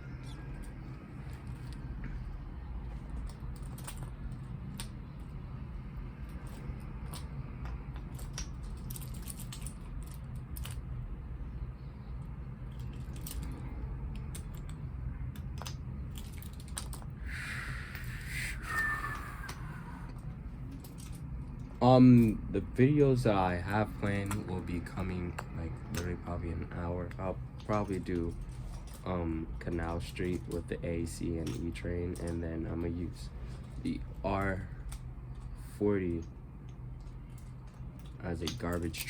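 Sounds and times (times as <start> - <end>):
steady low hum: 0.0 - 39.0
plastic toy cars clicking: 12.7 - 17.2, 23.5 - 33.2, 37.0 - 39.0.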